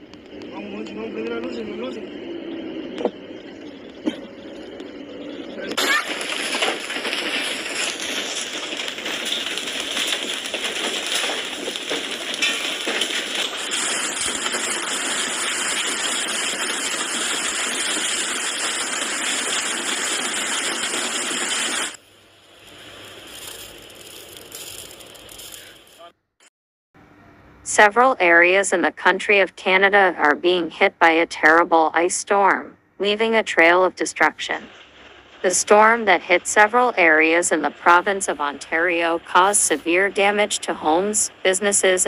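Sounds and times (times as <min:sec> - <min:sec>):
hail pelting hard surfaces: 0:05.8 - 0:22.0, 0:22.7 - 0:26.1, 0:34.6 - 0:40.8.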